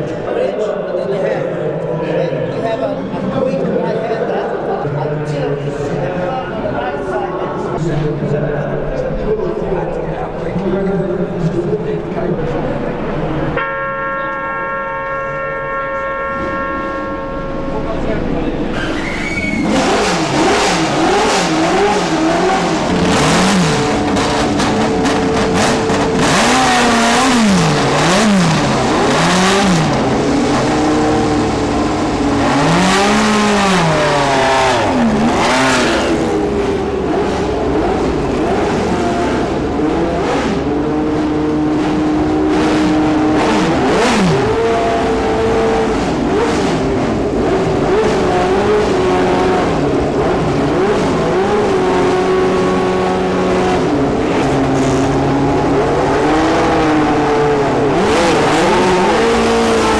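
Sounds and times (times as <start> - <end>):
race car engines at high revs: 15.4 - 59.9.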